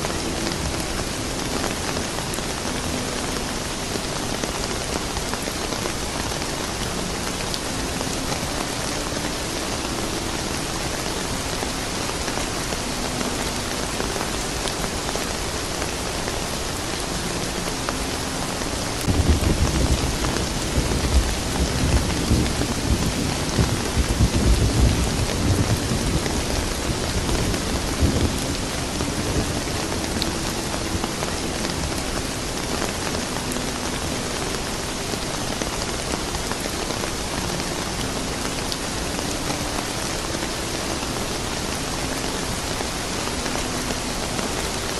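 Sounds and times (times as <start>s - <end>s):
steady rain falling: 0.0s - 44.9s
low rumble of thunder: 19.1s - 29.5s.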